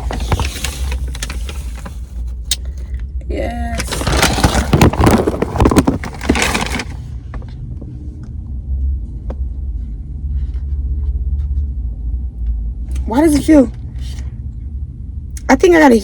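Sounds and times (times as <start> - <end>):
packaging rustling and scraping: 0.0 - 2.4, 3.7 - 7.2
car cabin engine rumble: 0.0 - 16.0.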